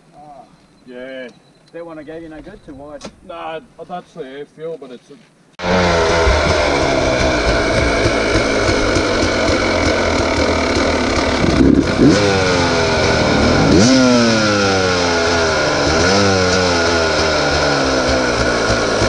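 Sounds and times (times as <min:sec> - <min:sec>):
dirt bike engine idling and revving: 0:05.6 - 0:19.0.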